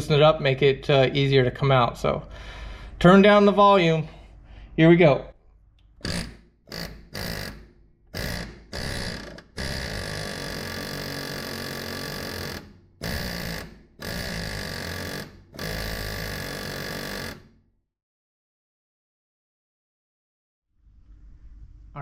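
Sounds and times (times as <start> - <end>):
pneumatic air hammer rattling: 6.0 - 17.4.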